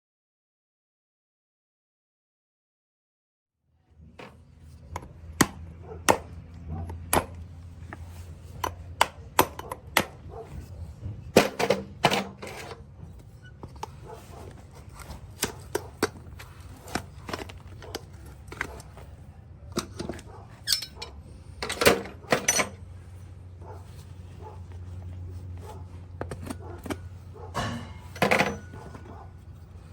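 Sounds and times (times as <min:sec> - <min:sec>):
tools scraping hoof: 0:04.2 - 0:29.9.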